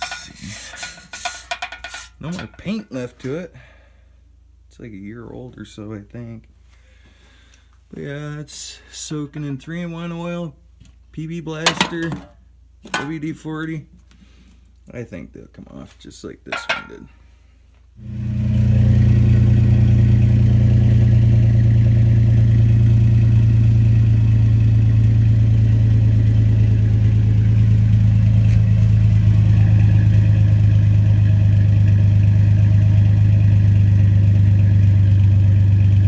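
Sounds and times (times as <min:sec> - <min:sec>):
car engine idling: 0:18.2 - 0:36.0.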